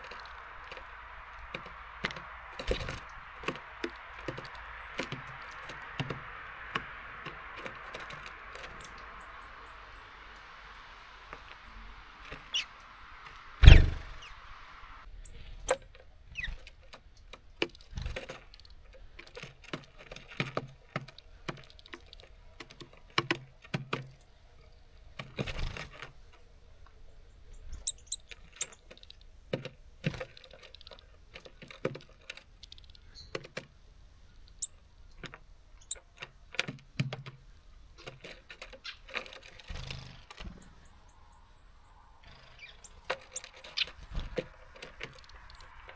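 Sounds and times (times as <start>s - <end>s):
birds pecking and tapping on feeder: 0.0s - 14.3s, 15.6s - 41.4s, 42.0s - 45.9s
faint high bird chirps: 0.0s - 16.6s, 27.3s - 29.2s, 35.8s - 36.1s, 40.4s - 45.9s
thump on bird feeder: 13.6s - 14.3s.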